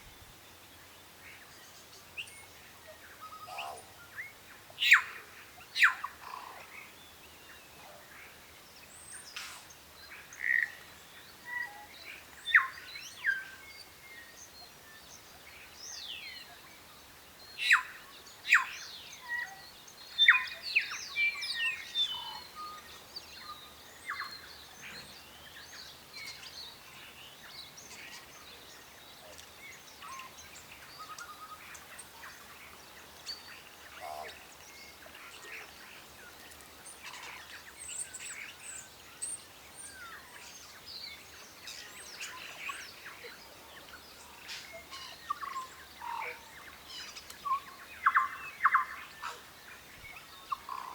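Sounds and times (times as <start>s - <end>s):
birds calling and chirping: 20.2s - 50.9s.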